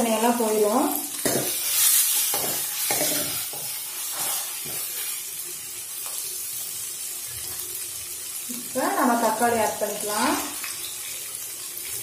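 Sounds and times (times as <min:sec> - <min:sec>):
onions sizzling in hot oil: 0:00.0 - 0:12.0
metal spoon scraping a pan: 0:01.2 - 0:05.2.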